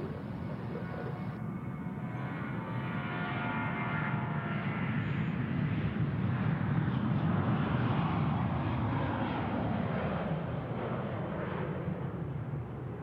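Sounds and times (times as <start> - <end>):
jet engines running: 0.0 - 3.1.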